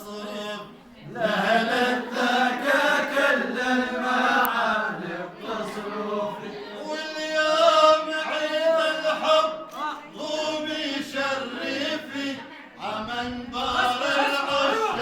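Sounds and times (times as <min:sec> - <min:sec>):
man singing: 0:00.0 - 0:01.9, 0:06.8 - 0:15.0.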